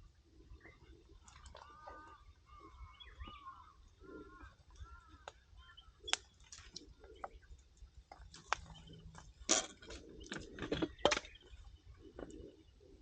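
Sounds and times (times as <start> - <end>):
campfire crackling and popping: 6.0 - 6.9.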